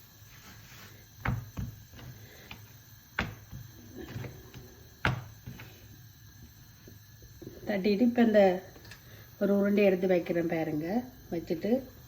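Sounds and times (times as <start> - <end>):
hands slapping dough: 1.2 - 5.6.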